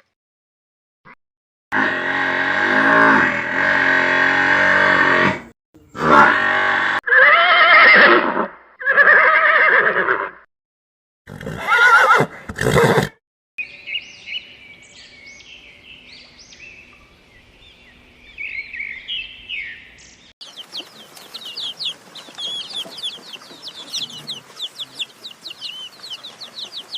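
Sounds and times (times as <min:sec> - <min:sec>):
horse whinnying: 0:06.0 - 0:10.4, 0:11.3 - 0:13.2
chickens chirping: 0:17.4 - 0:26.9.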